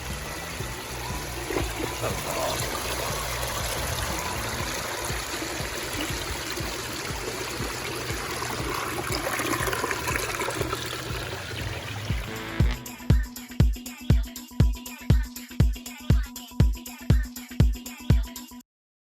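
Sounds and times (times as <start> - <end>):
water trickling over rocks: 0.0 - 12.7
music with thumping beat: 0.0 - 18.6.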